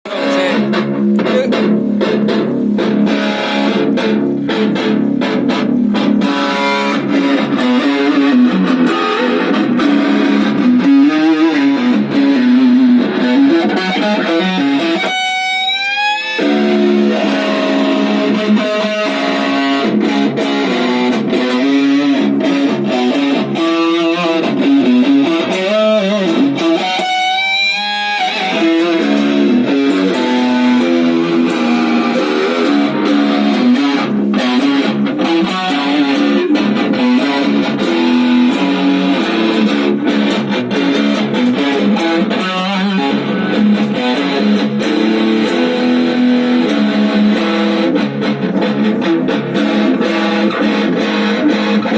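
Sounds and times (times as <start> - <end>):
electric guitalele plucked notes: 0.0 - 51.9.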